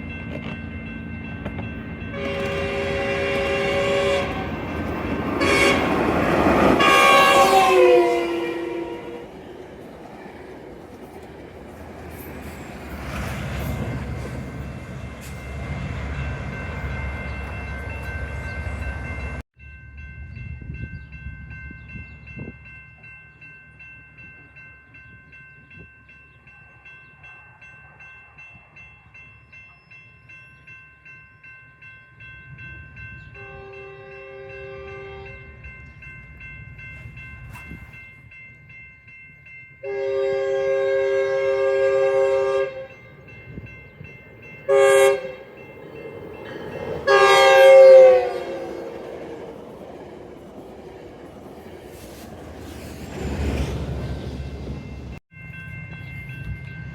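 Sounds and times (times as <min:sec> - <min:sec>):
train heavy low rumble: 0:00.0 - 0:29.8, 0:31.8 - 0:56.9
train horn: 0:02.1 - 0:04.8, 0:05.4 - 0:09.4, 0:33.3 - 0:35.6, 0:39.8 - 0:43.1, 0:44.7 - 0:45.6, 0:47.0 - 0:49.1.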